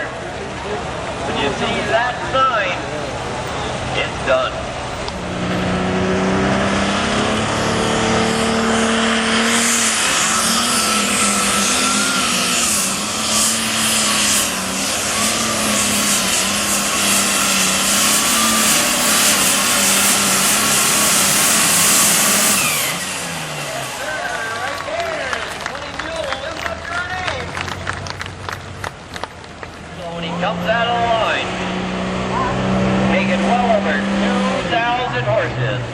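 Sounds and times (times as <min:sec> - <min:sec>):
tractor engine at full throttle: 0:00.0 - 0:35.9
loud rushing noise: 0:00.9 - 0:27.4.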